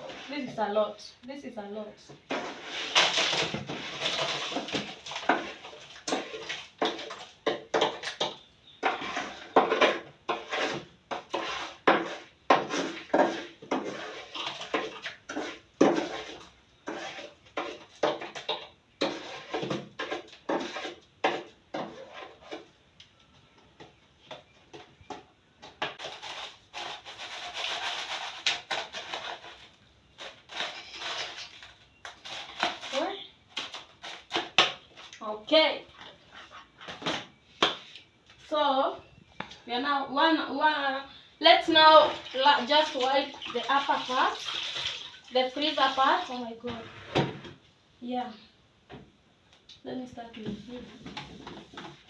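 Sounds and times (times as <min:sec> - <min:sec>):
knife scraping ice: 0:02.3 - 0:07.2, 0:08.8 - 0:18.4, 0:19.0 - 0:22.6, 0:26.0 - 0:34.6.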